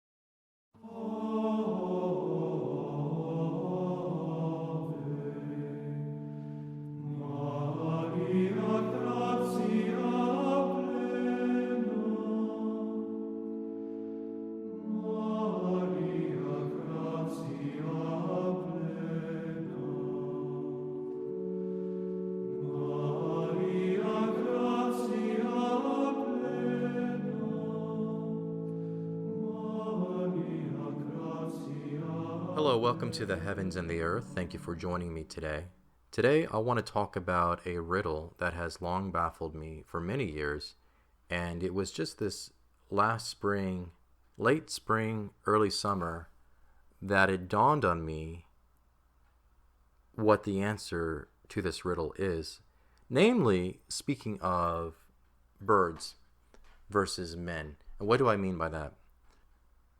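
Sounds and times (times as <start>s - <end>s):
slow choral chant: 0.8s - 34.9s.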